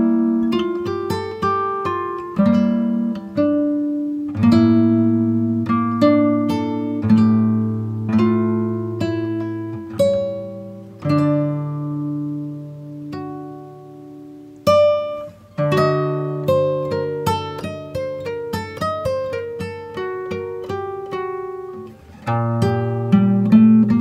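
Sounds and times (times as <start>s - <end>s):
plucked acoustic guitar chords: 0.0s - 24.0s.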